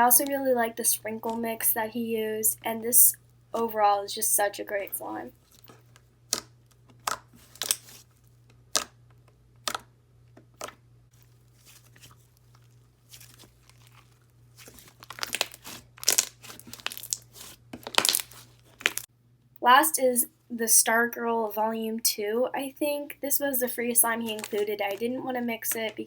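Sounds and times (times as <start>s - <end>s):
slime clicking and squelching: 5.4s - 8.0s, 8.6s - 9.0s, 9.6s - 9.9s, 10.6s - 19.1s, 24.2s - 25.1s.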